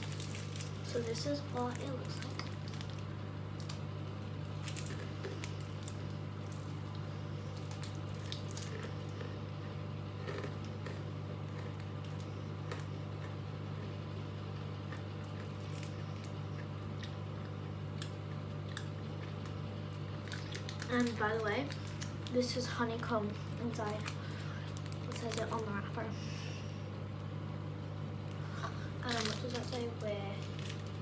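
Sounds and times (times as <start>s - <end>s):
steady low hum: 0.0s - 31.0s
person chewing: 4.5s - 13.9s.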